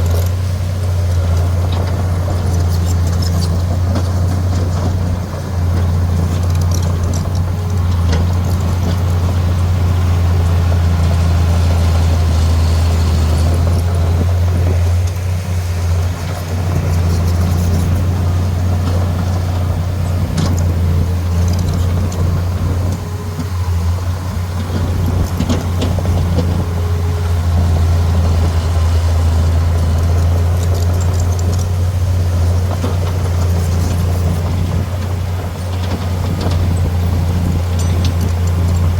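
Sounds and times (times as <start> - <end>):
diesel machine droning: 0.0 - 38.9.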